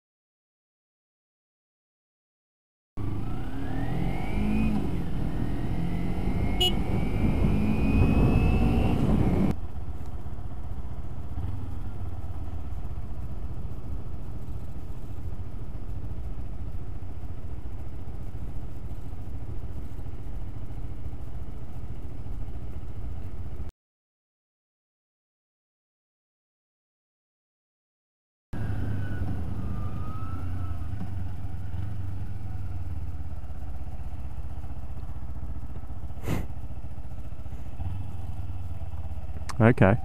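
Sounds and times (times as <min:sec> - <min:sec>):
motorcycle engine revving: 0:03.0 - 0:09.6.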